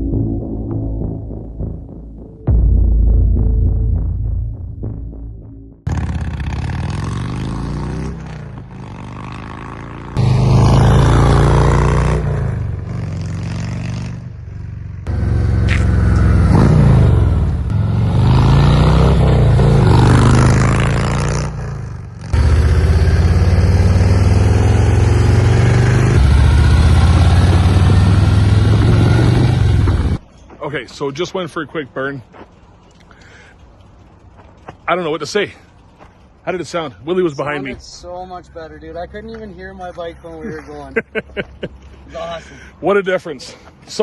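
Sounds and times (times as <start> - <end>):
motorcycle engine accelerating: 0.0 - 30.2.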